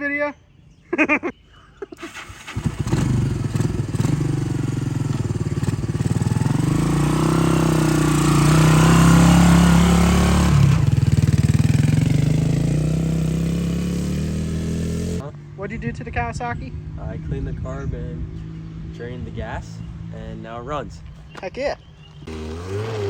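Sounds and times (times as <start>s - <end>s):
three-wheeler engine running: 2.0s - 17.6s, 22.2s - 23.0s.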